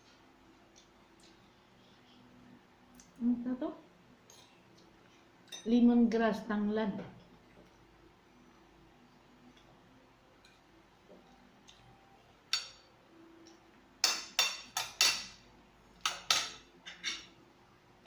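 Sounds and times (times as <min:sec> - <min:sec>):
cutlery clinking on dishes: 0:12.5 - 0:12.9, 0:14.0 - 0:15.4, 0:16.0 - 0:17.4.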